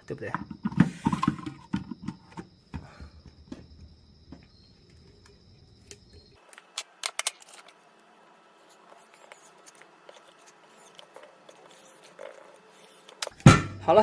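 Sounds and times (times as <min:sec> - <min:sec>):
plastic parts clicking and knocking: 0:00.2 - 0:02.5.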